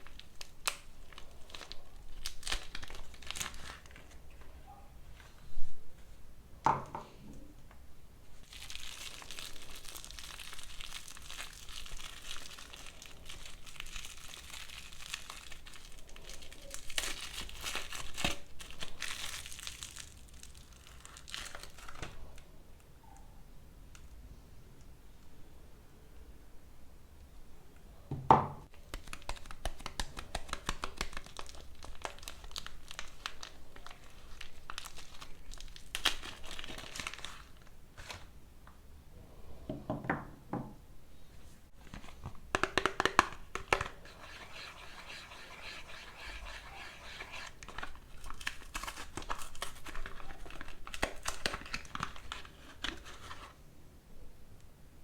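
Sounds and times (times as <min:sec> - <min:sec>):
wrappers crinkling and tearing: 0:00.0 - 0:04.3, 0:08.3 - 0:22.4, 0:28.7 - 0:38.3, 0:45.9 - 0:53.6.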